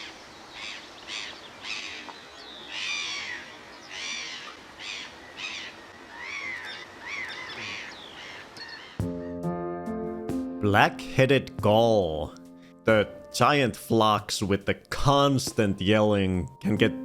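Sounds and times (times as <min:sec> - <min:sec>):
gulls calling: 0:00.0 - 0:09.5.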